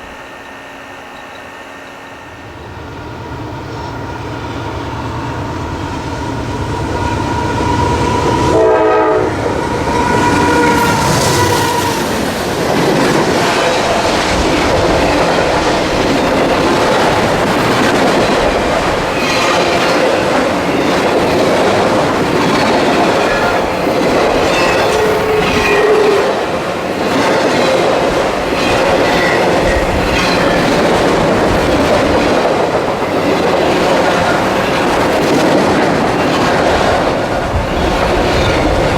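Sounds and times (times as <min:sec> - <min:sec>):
train rumbling past: 0:00.0 - 0:38.9
train horn: 0:06.7 - 0:12.2, 0:23.1 - 0:26.5.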